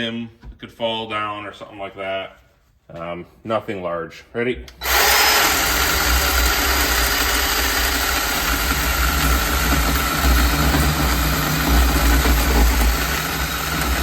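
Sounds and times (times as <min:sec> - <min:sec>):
electric chainsaw cutting wood: 0:04.8 - 0:14.0.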